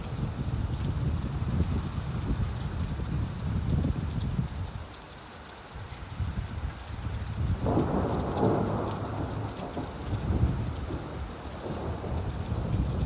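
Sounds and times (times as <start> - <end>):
steady rain: 0.0 - 13.0
thunder rumbling: 7.4 - 13.0.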